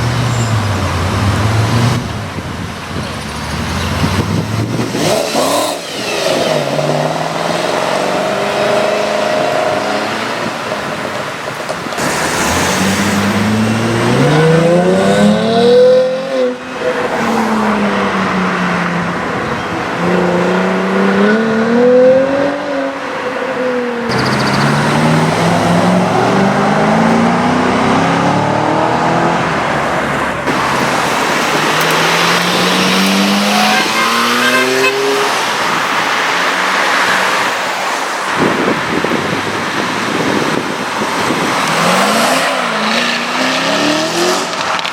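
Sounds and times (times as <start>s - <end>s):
car engine accelerating: 11.9s - 38.0s.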